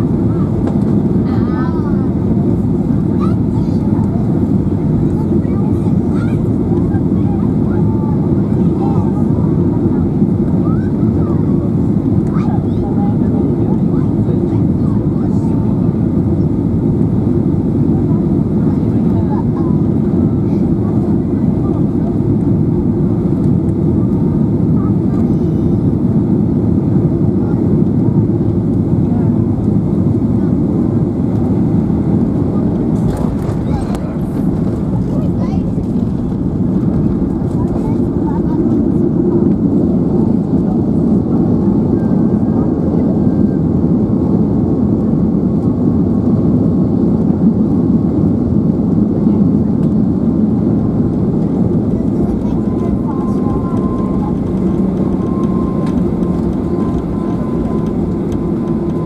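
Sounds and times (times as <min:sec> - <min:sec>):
airplane cabin engine rumble: 0:00.0 - 0:59.0
airflow: 0:30.9 - 0:40.4, 0:51.0 - 0:59.0.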